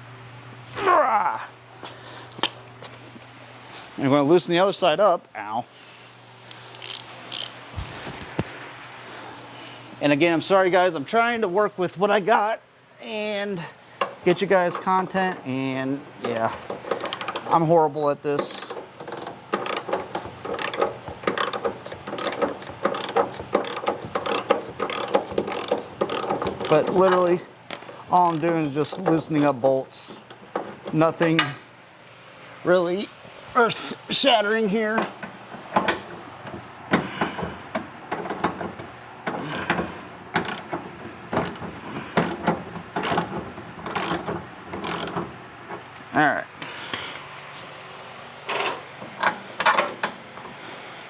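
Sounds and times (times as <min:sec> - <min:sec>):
ratchet wrench clicking: 0:06.5 - 0:07.6, 0:17.0 - 0:17.5, 0:18.4 - 0:27.4, 0:28.1 - 0:29.6, 0:40.4 - 0:40.7, 0:43.0 - 0:43.3, 0:43.9 - 0:45.2
metal tool clanks: 0:18.4 - 0:29.5.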